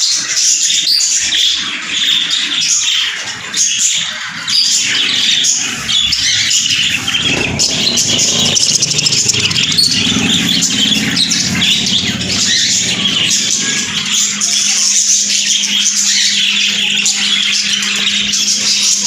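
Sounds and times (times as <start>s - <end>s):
budgerigars chattering: 0.1s - 19.0s
vehicle engine running: 4.2s - 18.4s.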